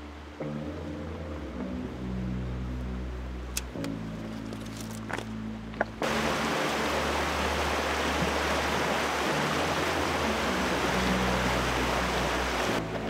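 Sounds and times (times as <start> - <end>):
flowing water rushing: 5.8 - 13.0.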